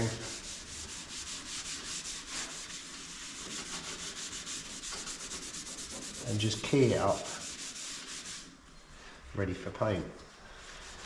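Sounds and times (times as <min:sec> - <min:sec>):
scouring pad scrubbing metal: 0:00.0 - 0:08.5.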